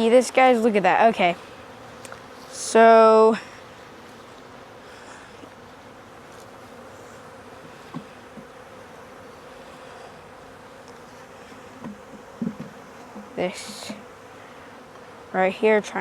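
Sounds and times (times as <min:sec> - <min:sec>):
honeybees buzzing: 0:00.0 - 0:16.0
soft thumps: 0:11.8 - 0:14.0.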